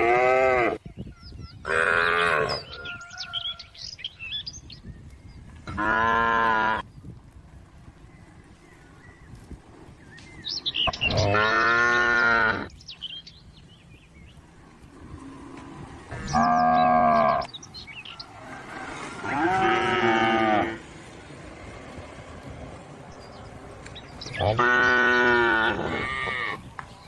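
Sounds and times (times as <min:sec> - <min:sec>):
cow mooing: 0:00.0 - 0:00.8, 0:01.7 - 0:02.8, 0:05.7 - 0:06.8, 0:10.9 - 0:12.7, 0:15.2 - 0:17.5, 0:19.1 - 0:20.8, 0:24.2 - 0:26.7.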